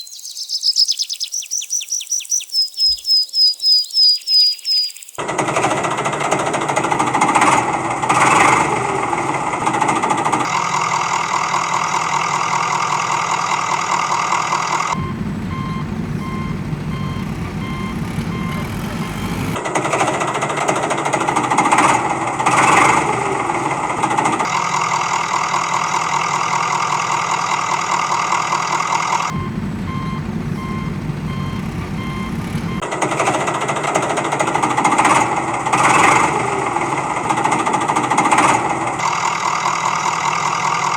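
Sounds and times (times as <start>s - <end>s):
heavy machine engine rattling: 5.2s - 40.9s
reversing alarm beeping: 14.9s - 19.6s, 29.3s - 32.9s.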